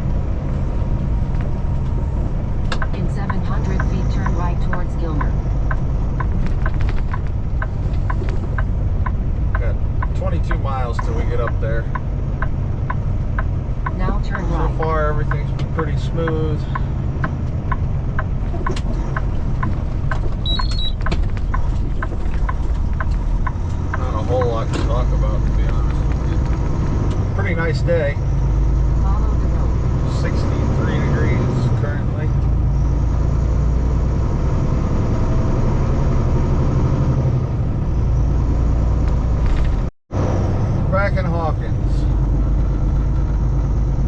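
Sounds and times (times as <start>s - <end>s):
turn signal ticking: 0.0s - 34.0s
diesel engine rumbling: 0.0s - 44.0s
road noise: 0.0s - 44.0s.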